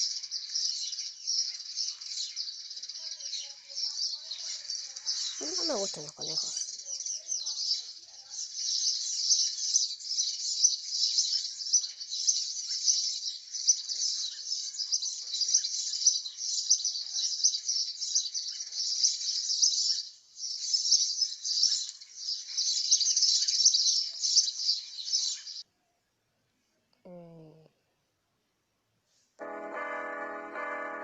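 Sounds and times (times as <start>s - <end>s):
high-pitched bird-like chirping: 3.0s - 7.9s.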